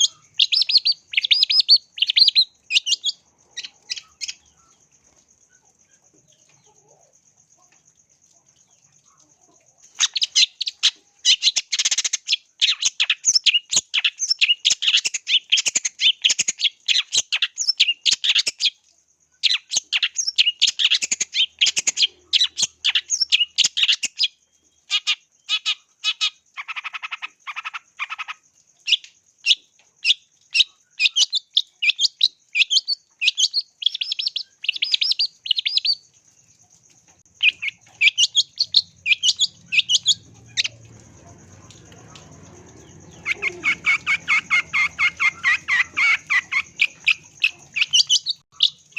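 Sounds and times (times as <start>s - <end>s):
bird singing sharp chirps: 37.4s - 48.9s.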